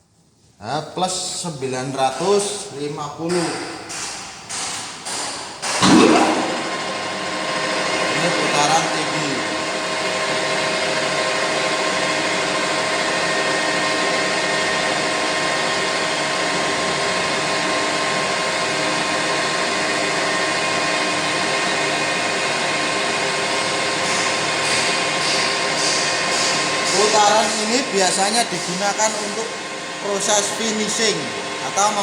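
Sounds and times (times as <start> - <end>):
lathe spindle whirring: 24.3 - 32.0.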